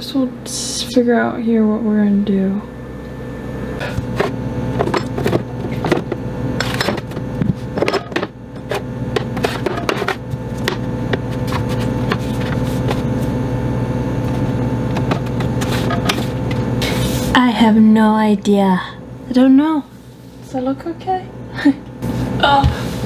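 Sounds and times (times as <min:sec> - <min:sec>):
steady hum: 0:00.0 - 0:23.0
glass jars clinking: 0:03.8 - 0:12.5.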